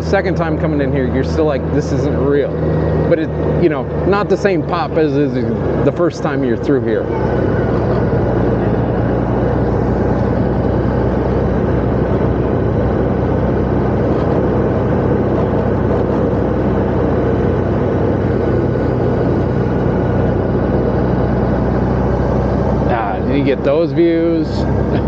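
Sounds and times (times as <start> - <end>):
motorcycle engine cruising: 0.0 - 25.0
road and wind noise: 0.0 - 25.0.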